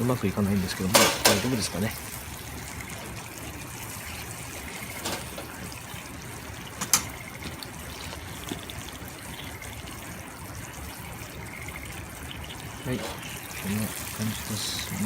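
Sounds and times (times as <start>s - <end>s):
fish sizzling in a pan: 0.0s - 15.0s.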